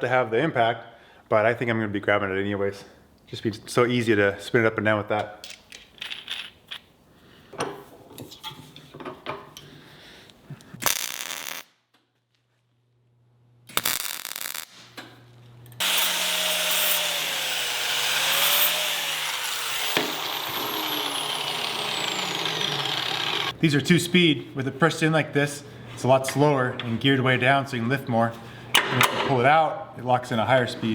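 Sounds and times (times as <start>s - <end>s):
power tool motor running: 15.8s - 23.5s.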